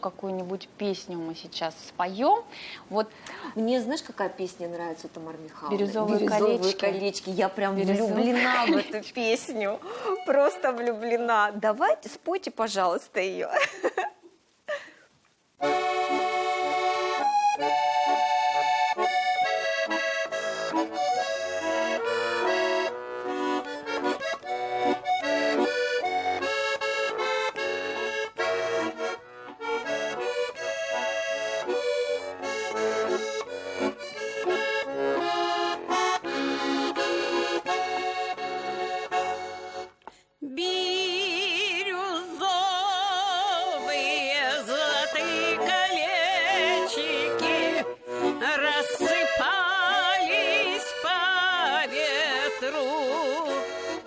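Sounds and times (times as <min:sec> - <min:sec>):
accordion playing folk melody: 0:02.0 - 0:12.7, 0:15.6 - 0:54.0
people singing with vibrato: 0:40.4 - 0:53.7.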